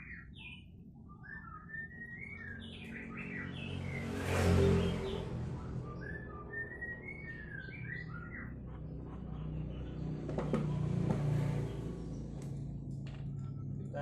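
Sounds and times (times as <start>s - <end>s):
small bird chirping and whistling: 0.0s - 4.0s, 5.0s - 8.6s.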